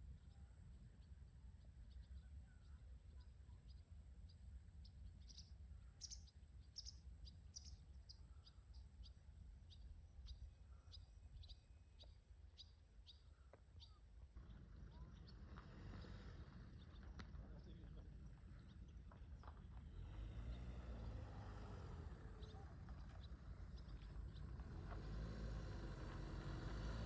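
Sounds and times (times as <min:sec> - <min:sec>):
low steady rumble: 0:14.2 - 0:27.0.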